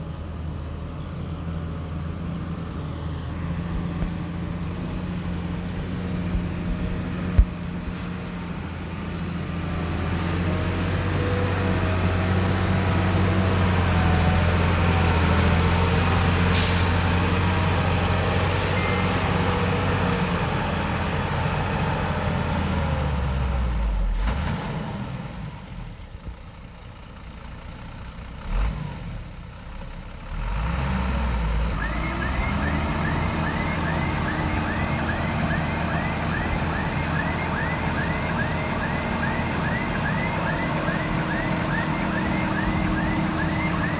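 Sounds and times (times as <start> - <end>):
heavy diesel engine running: 0.0 - 24.2, 31.4 - 43.9
short sharp hiss: 16.6 - 17.3
reversing alarm beeping: 18.7 - 19.7, 31.8 - 43.9.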